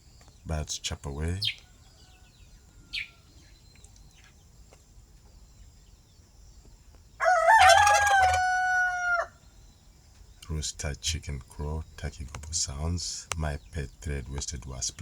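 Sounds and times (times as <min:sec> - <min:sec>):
rooster crowing: 0:01.6 - 0:03.4, 0:07.2 - 0:09.4.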